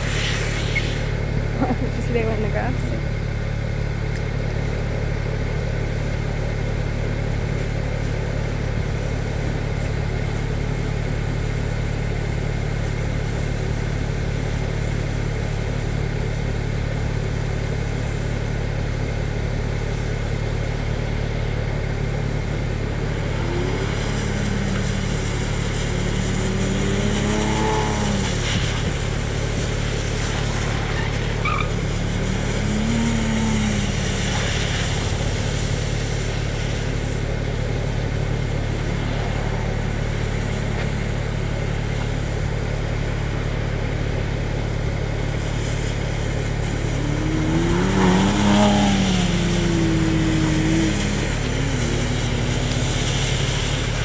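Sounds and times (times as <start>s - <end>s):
hiss: 0.0s - 1.6s, 22.1s - 43.3s, 44.6s - 54.0s
car engine revving: 0.0s - 54.0s
low engine hum: 0.0s - 54.0s.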